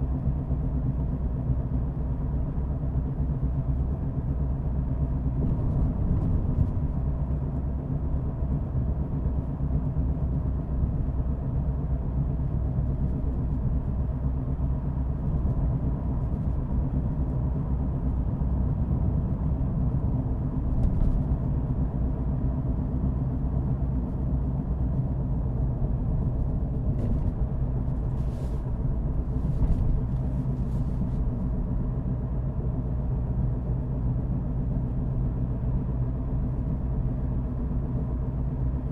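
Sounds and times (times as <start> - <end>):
car engine rumble: 0.0 - 38.9
road noise: 24.6 - 38.9.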